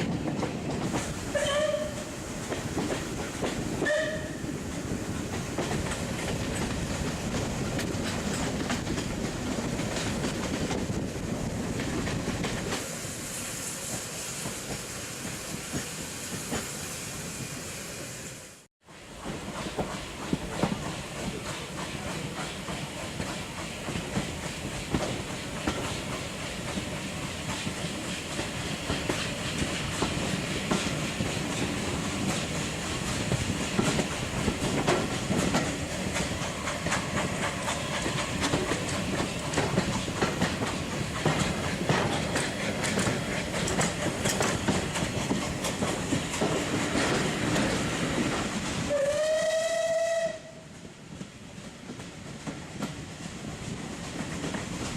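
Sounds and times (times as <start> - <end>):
train carriage rumble: 0.0 - 54.9
steam whistle: 1.3 - 2.1, 3.8 - 4.5, 48.9 - 50.7
wheels clicking over rail joints: 19.2 - 49.0.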